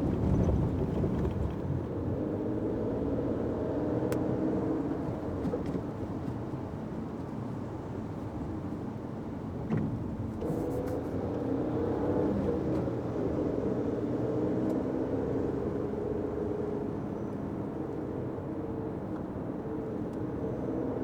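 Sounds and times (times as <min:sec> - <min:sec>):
road noise: 0:00.0 - 0:21.0.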